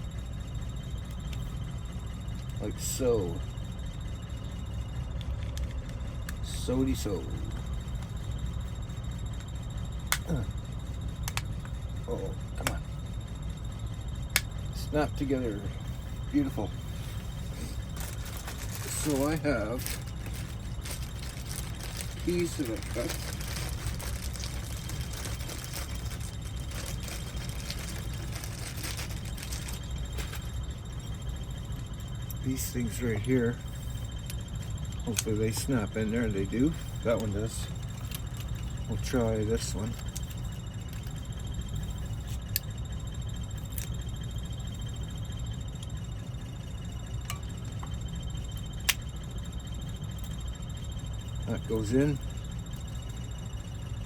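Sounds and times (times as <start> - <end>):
steady low hum: 0.0 - 54.0
steady low rumble: 0.0 - 54.0
keys clicking while handled: 17.8 - 30.5.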